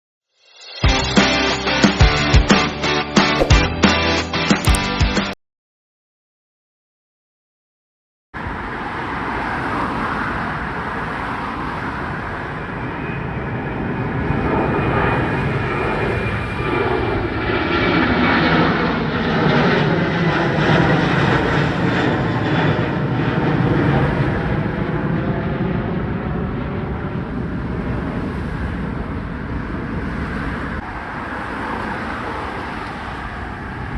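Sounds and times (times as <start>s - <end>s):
jet airliner taking off: 8.4s - 33.9s.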